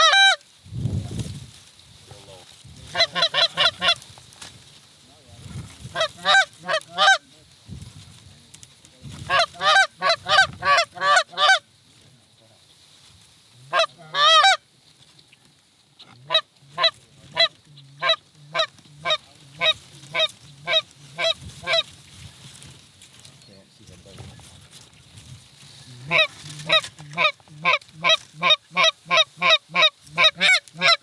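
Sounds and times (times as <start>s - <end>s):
goose honking: 0.0s - 0.4s, 2.8s - 4.1s, 5.8s - 7.4s, 9.2s - 11.7s, 13.7s - 14.6s, 16.0s - 22.0s, 25.8s - 31.0s.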